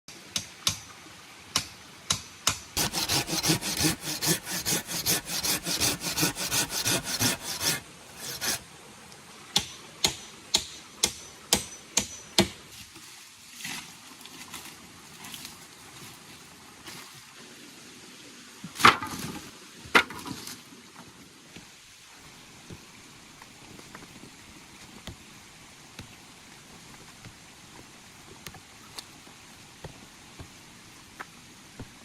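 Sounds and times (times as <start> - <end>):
fast rhythmic strokes on wood: 2.8 - 8.6.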